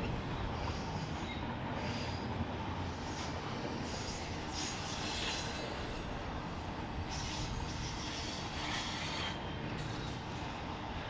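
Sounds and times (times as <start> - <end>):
wheels rumbling on rail: 0.0 - 11.0
wheel screech: 7.0 - 10.3.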